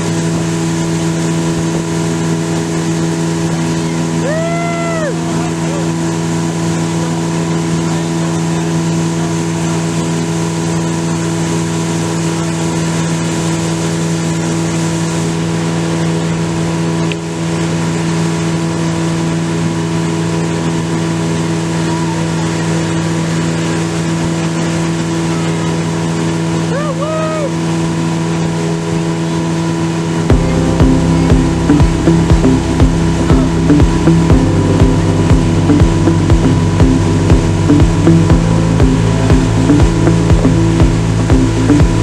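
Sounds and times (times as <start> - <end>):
motorboat engine running: 0.0 - 42.0
rush of water: 0.0 - 42.0.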